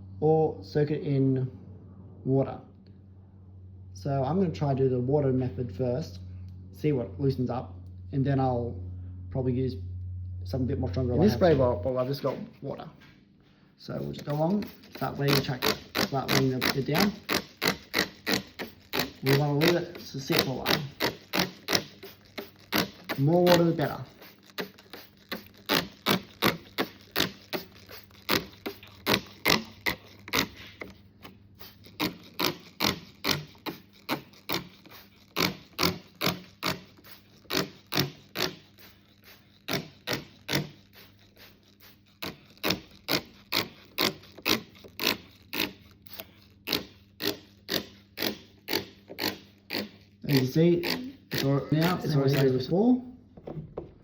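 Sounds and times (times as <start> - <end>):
spray bottle spritzing: 14.0 - 52.6.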